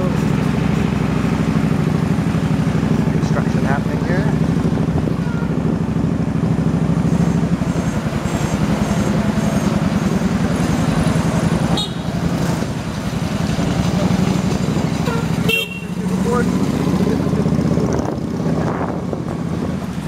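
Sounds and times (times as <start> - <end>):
motorbike engine running: 0.0 - 20.0
wind buffeting microphone: 17.6 - 20.0.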